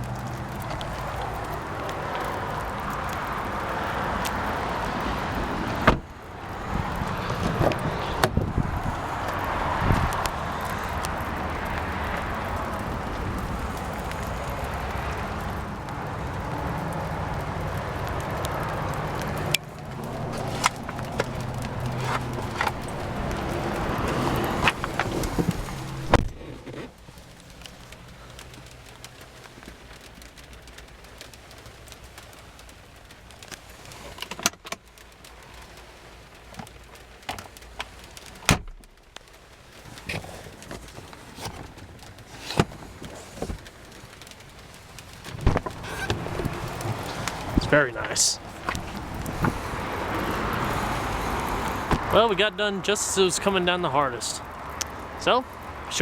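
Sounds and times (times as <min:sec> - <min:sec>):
steady rain pattering: 0:00.0 - 0:56.0
heavy thump: 0:45.3 - 0:46.3.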